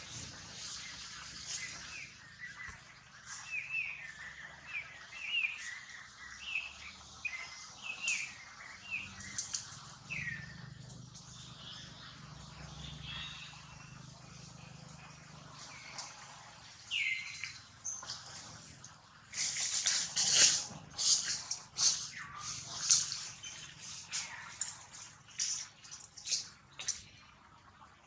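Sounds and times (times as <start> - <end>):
faint ticks among leaves: 0.0 - 3.6, 16.9 - 27.0
bird chirping: 0.0 - 18.7, 19.3 - 27.1.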